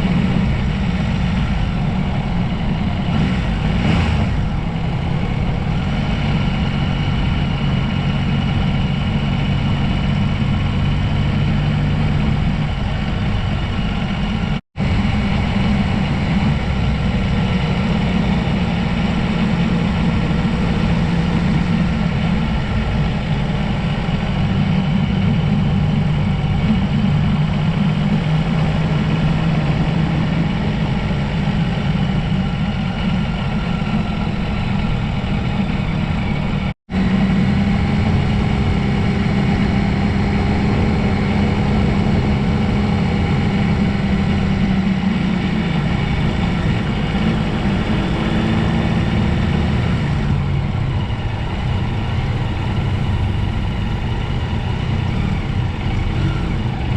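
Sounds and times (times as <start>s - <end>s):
vehicle engine running: 0.0s - 56.9s.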